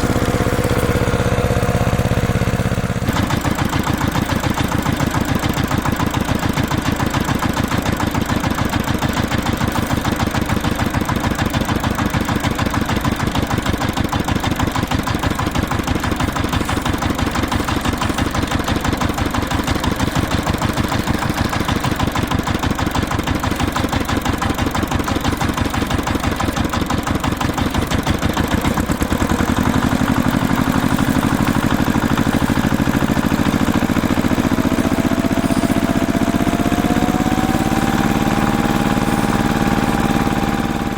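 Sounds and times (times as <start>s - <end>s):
engine chugging: 0.0s - 40.9s.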